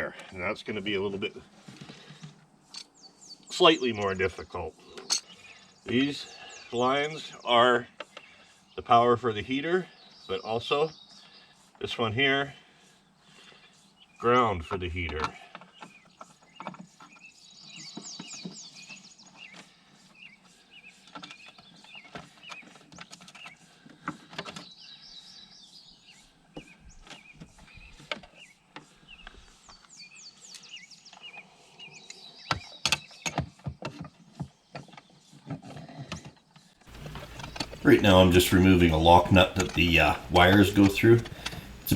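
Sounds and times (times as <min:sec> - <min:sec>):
hand tools clicking on metal: 0:36.9 - 0:41.9
high chirping: 0:36.9 - 0:41.9.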